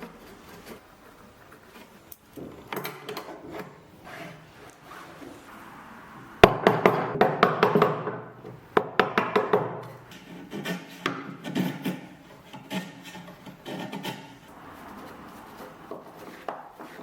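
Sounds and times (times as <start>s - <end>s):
wood knocking: 6.4s - 14.2s.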